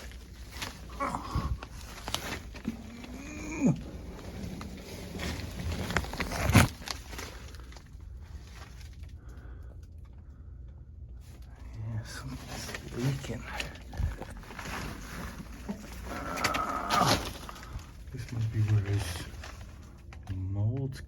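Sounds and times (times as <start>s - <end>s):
person groaning: 0.9s - 1.8s, 2.6s - 4.3s, 16.0s - 17.7s.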